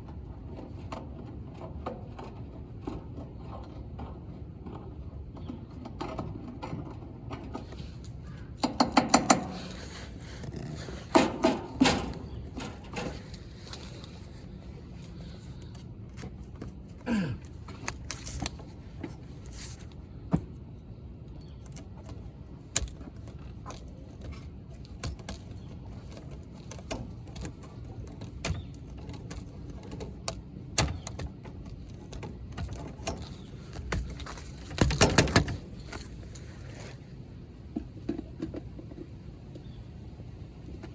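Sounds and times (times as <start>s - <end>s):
hand tools clicking and knocking: 5.4s - 19.8s, 21.4s - 36.9s.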